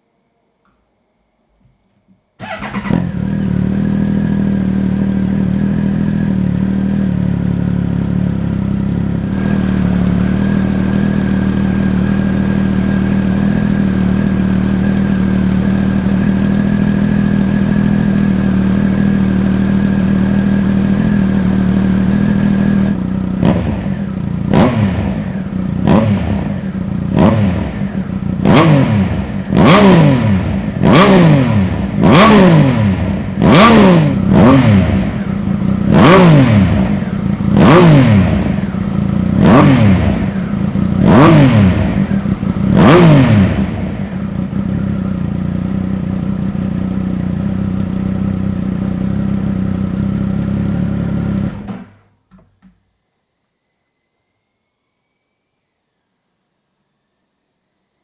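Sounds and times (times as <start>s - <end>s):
engine starting: 2.4s - 3.3s
engine revving: 2.4s - 7.1s, 9.1s - 46.7s
motorcycle engine idling: 2.4s - 52.0s.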